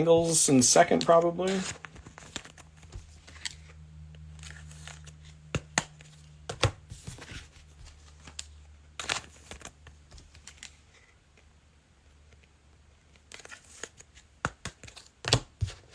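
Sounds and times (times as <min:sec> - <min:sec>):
card packs clicking and tapping: 0:00.0 - 0:03.6, 0:05.6 - 0:10.8, 0:13.3 - 0:15.9.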